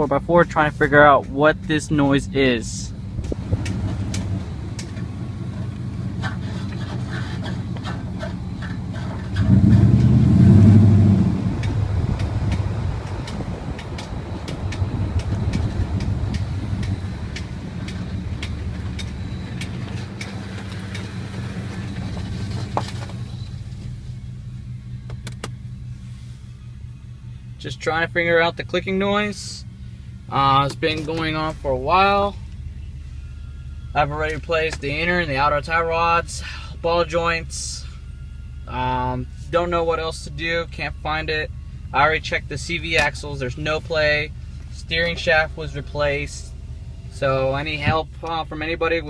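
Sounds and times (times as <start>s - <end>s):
truck engine running: 0.0s - 49.0s
sharp irregular clicks: 11.6s - 21.1s.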